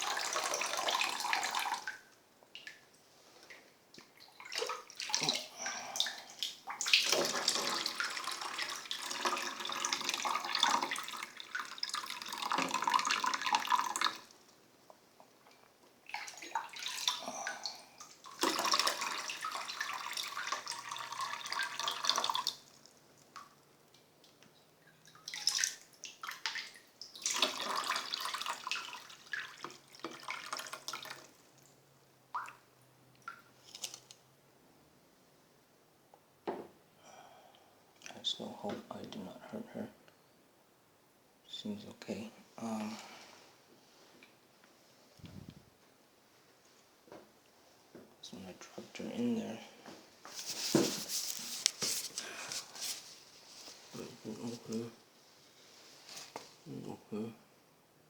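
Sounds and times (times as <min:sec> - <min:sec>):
tap water splashing into tub: 0:03.9 - 0:14.3, 0:16.0 - 0:22.7, 0:24.2 - 0:31.3, 0:32.3 - 0:32.6.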